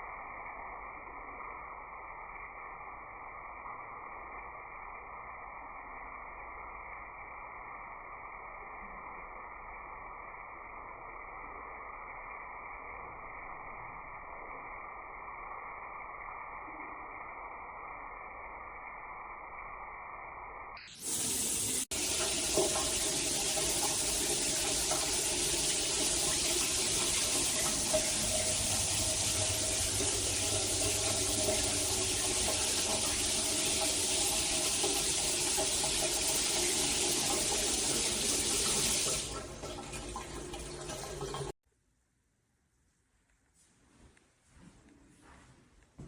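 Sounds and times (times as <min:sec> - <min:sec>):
shower water running: 0:20.9 - 0:41.6.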